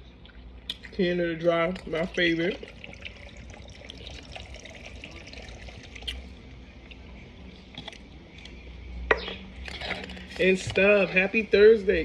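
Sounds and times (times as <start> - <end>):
soda pouring into cup: 1.7 - 6.2.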